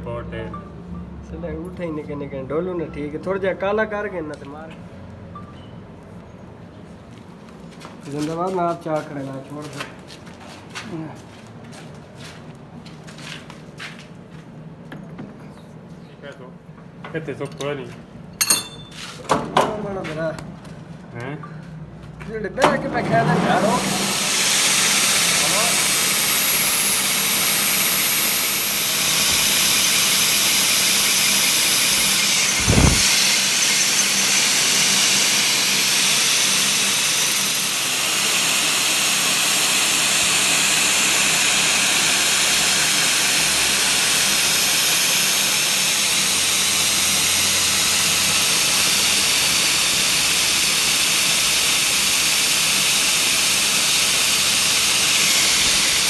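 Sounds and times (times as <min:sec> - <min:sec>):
loud hissing machine: 0:22.9 - 0:56.0
high whine: 0:23.9 - 0:38.3.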